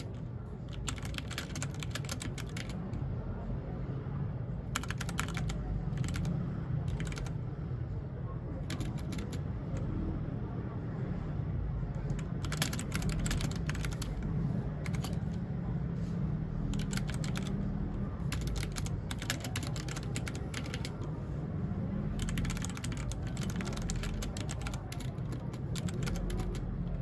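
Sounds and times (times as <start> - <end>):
mechanical keyboard typing: 0.0 - 3.0, 4.7 - 6.3, 6.9 - 7.4, 8.6 - 9.9, 12.0 - 15.4, 16.7 - 21.1, 22.0 - 27.0.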